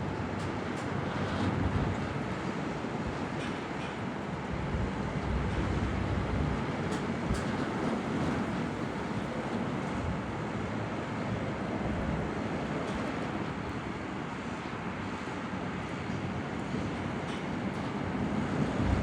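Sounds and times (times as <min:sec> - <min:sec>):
wind noise on microphone: 0:00.2 - 0:11.0, 0:17.6 - 0:19.0
low rumble: 0:18.8 - 0:19.0.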